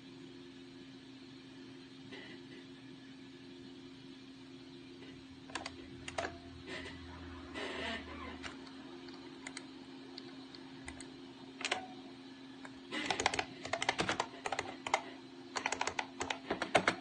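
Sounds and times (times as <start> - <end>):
keyboard key clicks: 13.0 - 15.0, 15.6 - 17.0.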